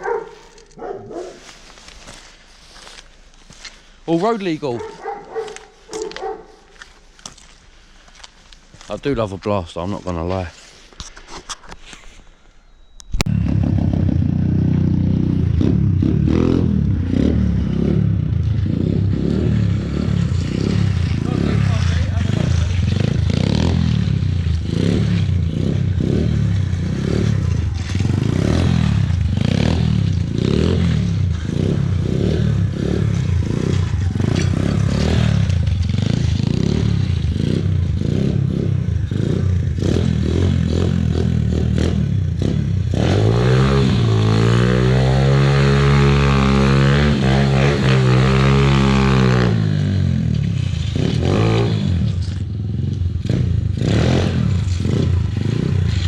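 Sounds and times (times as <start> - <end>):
two-stroke quad engine revving: 13.3 - 56.0.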